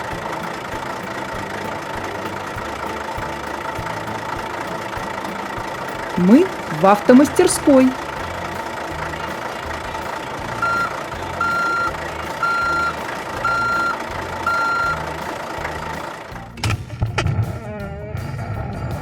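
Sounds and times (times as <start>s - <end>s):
low engine rumble: 0.0s - 19.0s
reversing alarm beeping: 10.6s - 15.2s.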